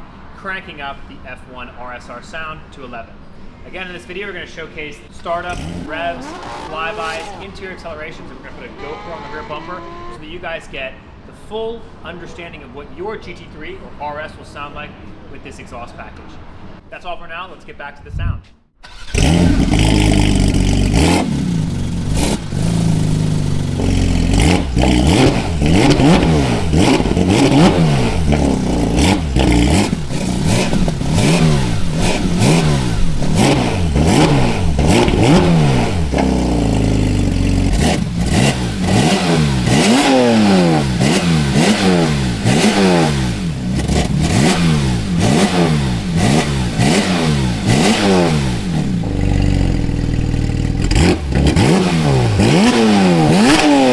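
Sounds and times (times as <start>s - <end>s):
car engine revving: 5.1s - 11.2s, 18.8s - 53.9s.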